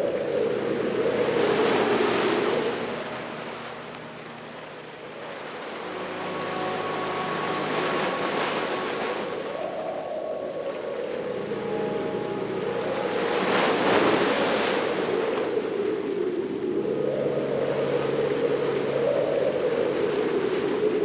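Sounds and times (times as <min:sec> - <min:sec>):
ocean surf washing on beach: 0:00.0 - 0:21.0.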